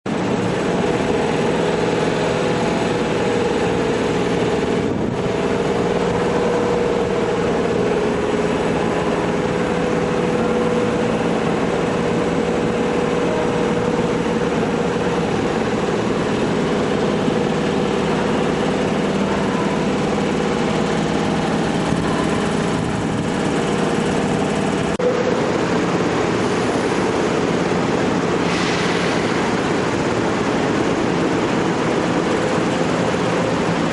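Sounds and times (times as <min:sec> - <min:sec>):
air compressor droning: 0:00.0 - 0:33.9
brief air hiss: 0:28.4 - 0:29.4.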